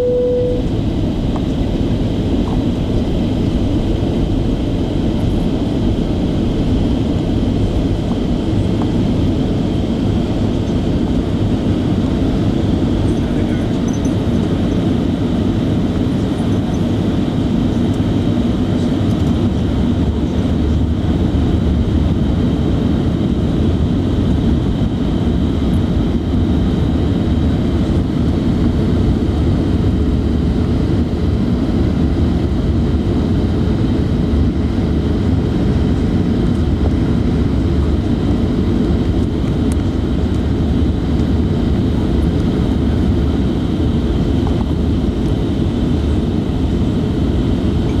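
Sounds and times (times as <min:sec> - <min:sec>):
faint high whine: 0:00.0 - 0:00.8
jet airliner cabin rumble: 0:00.0 - 0:48.0.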